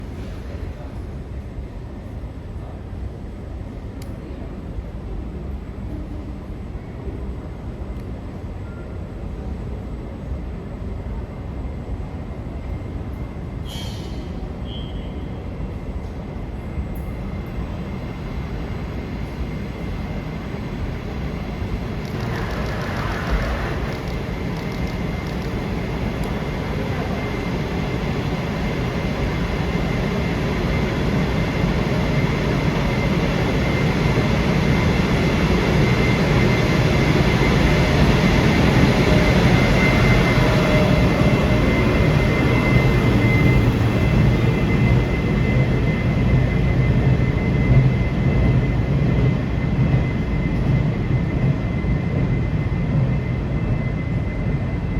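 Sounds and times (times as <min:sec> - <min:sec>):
freight train wagons rumbling: 0:22.0 - 0:27.6.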